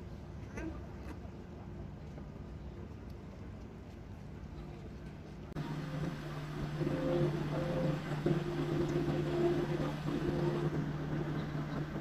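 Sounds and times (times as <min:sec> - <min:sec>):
engine running steadily: 0:05.2 - 0:12.0
higher tones: 0:05.6 - 0:11.1.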